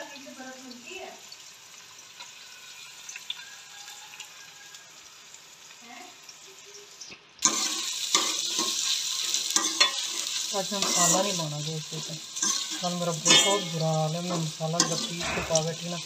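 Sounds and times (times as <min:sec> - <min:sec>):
loud sizzle: 0:00.0 - 0:16.0
onions frying in oil: 0:00.0 - 0:16.0.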